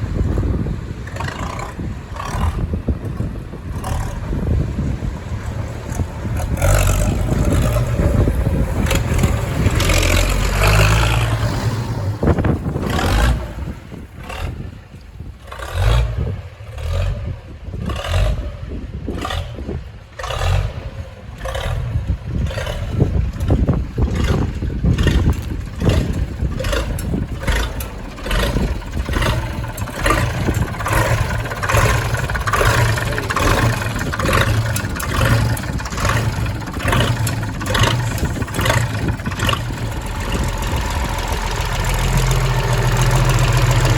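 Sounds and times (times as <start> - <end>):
tractor engine running: 0.0 - 43.9
knocks and clatter: 22.5 - 43.9.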